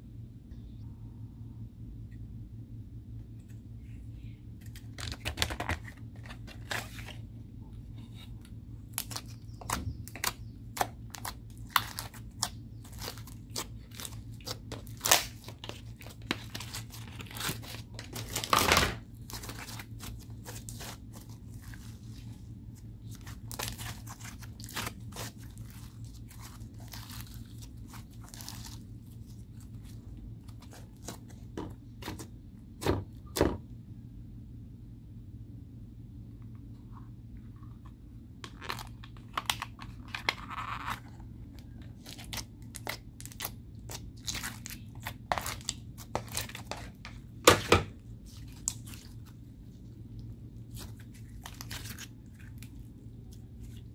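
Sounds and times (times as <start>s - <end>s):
steady low hum: 0.0s - 53.9s
slime crackling and popping: 8.9s - 18.7s.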